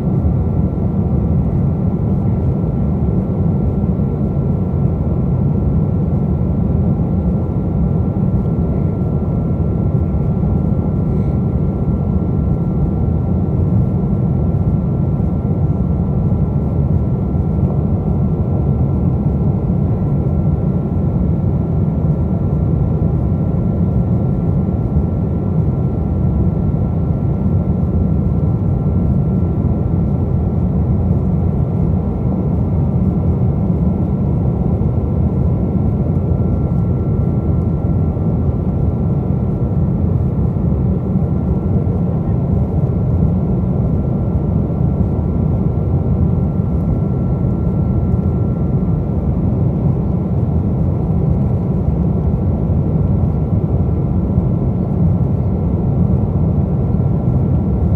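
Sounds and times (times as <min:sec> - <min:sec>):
airliner cabin rumble: 0:00.0 - 0:57.9
thin steady whine: 0:00.0 - 0:57.9.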